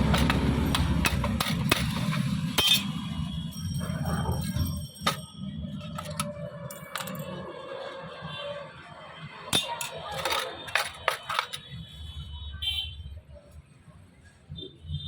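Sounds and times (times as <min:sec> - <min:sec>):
metal tools clinking and tapping: 0:00.0 - 0:07.6, 0:09.5 - 0:11.9.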